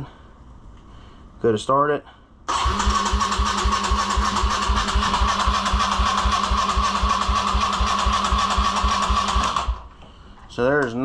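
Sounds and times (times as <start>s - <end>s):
electric starter cranking engine: 2.5s - 9.9s.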